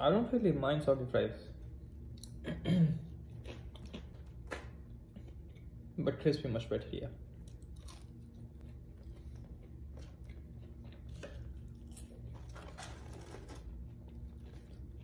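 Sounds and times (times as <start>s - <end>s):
person chewing fries: 3.1s - 5.9s, 7.3s - 15.0s.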